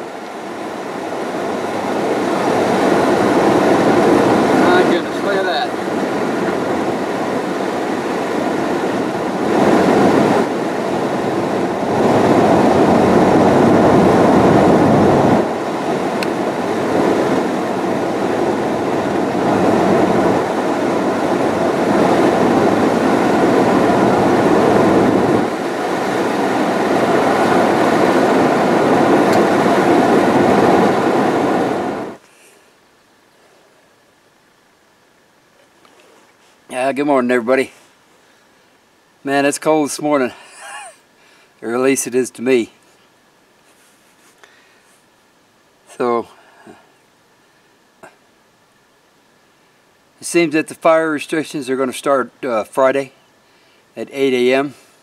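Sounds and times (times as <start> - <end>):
pickup truck road rumble: 0.0 - 32.2.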